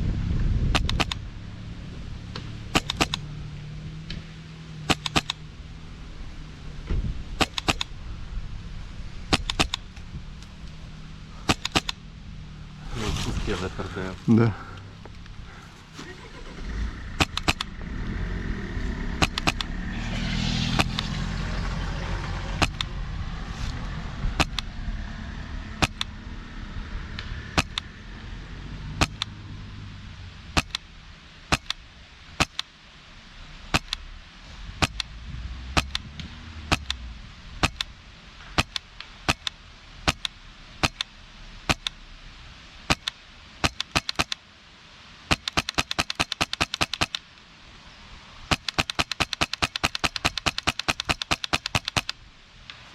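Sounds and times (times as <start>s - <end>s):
passing vehicle rumbling: 0.0s - 32.3s, 33.0s - 43.5s
airsoft rifle shots: 0.7s - 1.3s, 2.7s - 3.4s, 4.8s - 5.5s, 7.3s - 8.0s, 9.3s - 10.0s, 11.4s - 12.0s, 17.1s - 17.8s, 19.2s - 19.8s, 20.6s - 21.2s, 22.6s - 23.0s, 24.4s - 24.7s, 25.8s - 26.1s, 27.6s - 27.9s, 29.0s - 29.3s, 30.6s - 30.8s, 31.5s - 31.8s, 32.4s - 32.7s, 33.7s - 34.0s, 34.8s - 35.1s, 35.8s - 36.1s, 36.7s - 37.0s, 37.6s - 37.9s, 38.6s - 41.1s, 41.7s - 42.0s, 42.9s - 44.4s, 45.3s - 47.2s, 48.5s - 52.2s.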